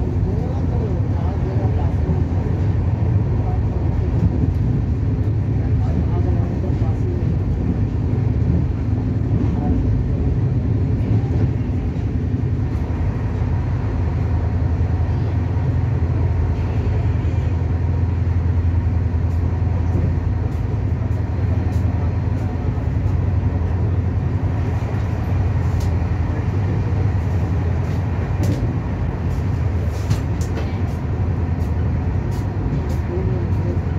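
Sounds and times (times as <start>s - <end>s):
train wheels rumbling on track: 0.0s - 33.9s.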